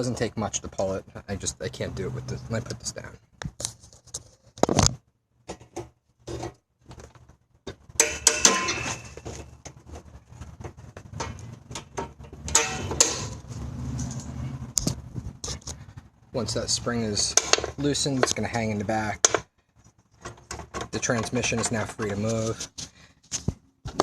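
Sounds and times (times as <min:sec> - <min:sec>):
sharp clicks and knocks: 0:03.4 - 0:15.8, 0:17.3 - 0:18.6, 0:19.2 - 0:19.5, 0:20.2 - 0:24.0
metal tools clinking: 0:08.0 - 0:09.4, 0:11.2 - 0:13.4
long metallic scrapes: 0:12.2 - 0:14.8.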